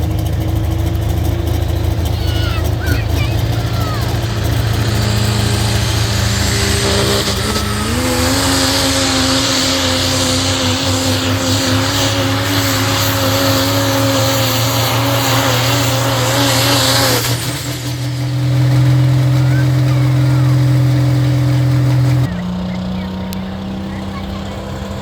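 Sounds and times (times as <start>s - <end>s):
diesel truck engine running hard: 0.0s - 25.0s
loud hiss: 3.0s - 22.2s.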